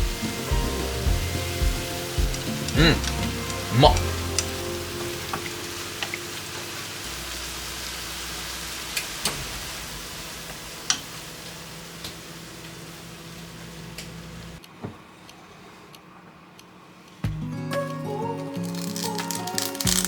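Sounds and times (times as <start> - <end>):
food sizzling in a frying pan: 3.3 - 13.5.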